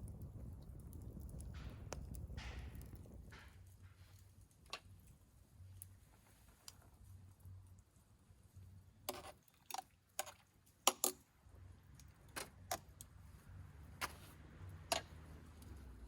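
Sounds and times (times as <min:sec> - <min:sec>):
faint low rumble: 0:00.0 - 0:08.9
metallic clicks of cookware: 0:09.1 - 0:11.2, 0:14.8 - 0:15.3.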